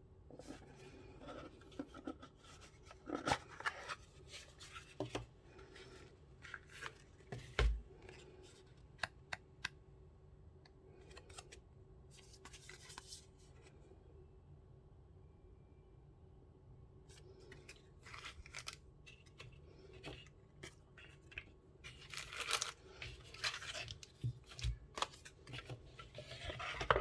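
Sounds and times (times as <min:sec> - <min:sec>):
packaging rustling and scraping: 0:17.4 - 0:27.0.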